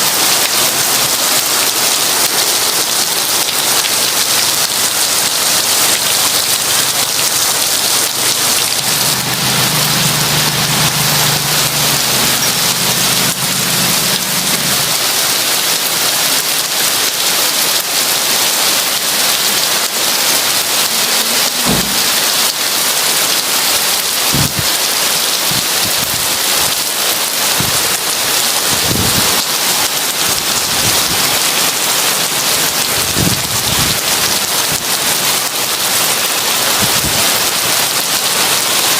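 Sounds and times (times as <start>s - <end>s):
heavy rain: 0.0s - 38.9s
thunder rumbling: 21.6s - 22.6s, 24.3s - 24.7s, 28.7s - 29.4s.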